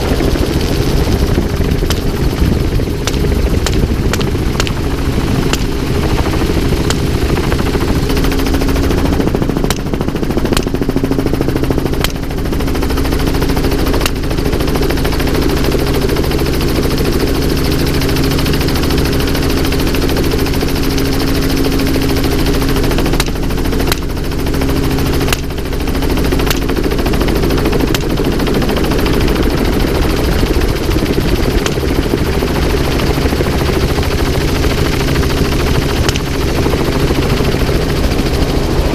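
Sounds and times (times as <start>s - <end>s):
helicopter engine and rotor: 0.0s - 38.9s
gunshots: 1.7s - 7.3s.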